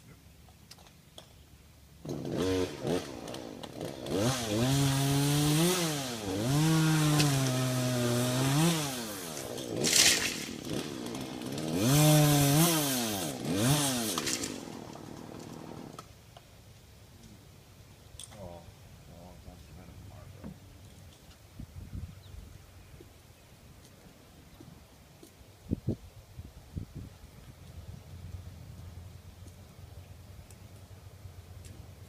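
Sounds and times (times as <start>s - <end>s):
chainsaw running and revving: 2.0s - 16.0s.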